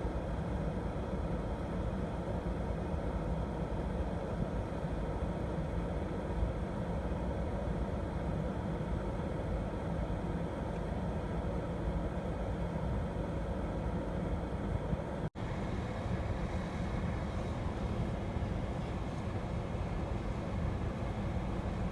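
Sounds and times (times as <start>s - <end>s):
car engine idling: 15.4s - 21.9s.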